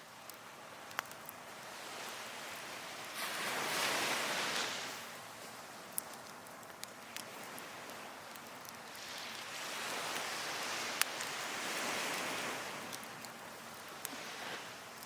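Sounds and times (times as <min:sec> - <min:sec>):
waves washing onto beach: 0:00.0 - 0:15.0
burning firewood popping: 0:05.4 - 0:09.4.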